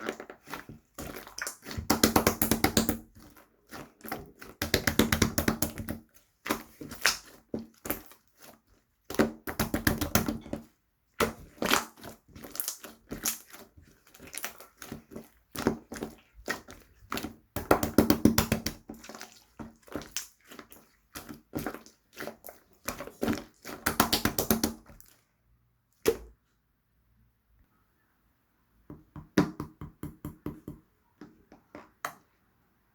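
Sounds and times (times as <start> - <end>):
hands squishing slime: 0.0 - 25.3.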